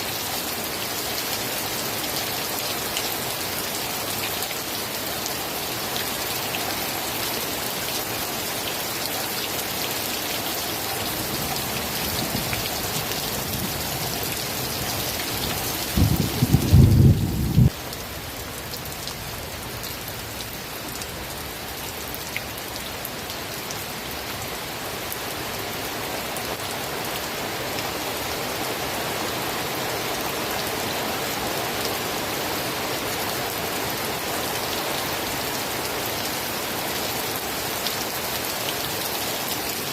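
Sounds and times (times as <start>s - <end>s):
rain falling: 0.0s - 39.9s
low rumble of thunder: 15.4s - 17.8s.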